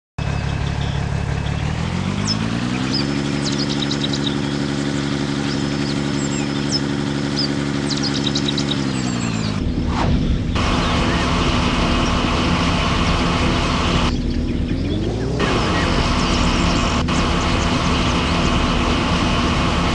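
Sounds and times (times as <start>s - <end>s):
engine revving and idling: 0.2s - 19.9s.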